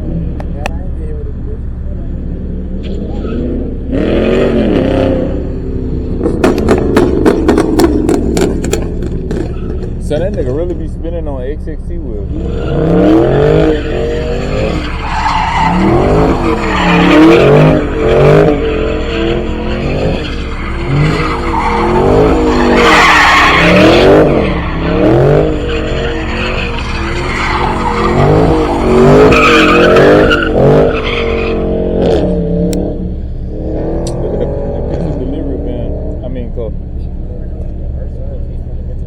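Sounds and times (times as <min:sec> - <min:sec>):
car engine revving: 0:00.0 - 0:39.0
tires squealing on pavement: 0:02.1 - 0:11.2, 0:12.2 - 0:32.7.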